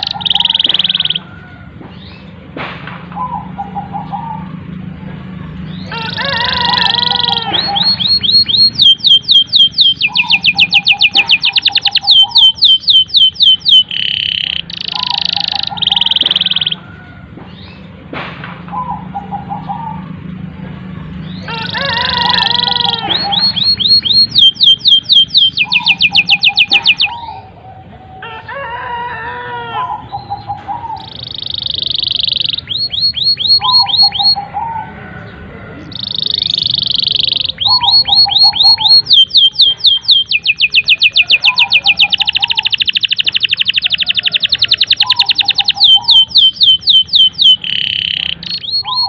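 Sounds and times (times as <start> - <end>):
canary singing: 0.0 - 2.5, 3.1 - 18.1, 18.7 - 49.0.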